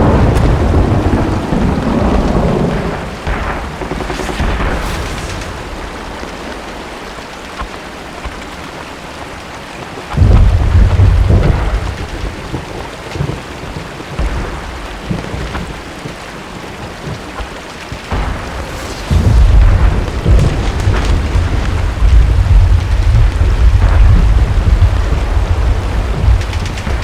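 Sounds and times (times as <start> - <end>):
deep rumbling booms: 0.0 - 7.1, 18.1 - 27.0
steady rain: 0.0 - 27.0.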